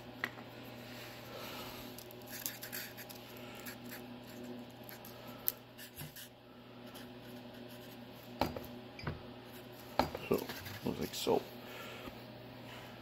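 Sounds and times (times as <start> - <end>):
faint steady hum: 0.0 - 13.0
scratching on workbench: 9.5 - 11.2.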